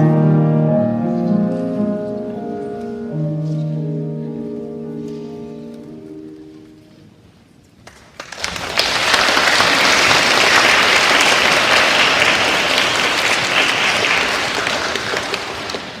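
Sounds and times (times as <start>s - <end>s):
audience applause: 7.9s - 16.0s.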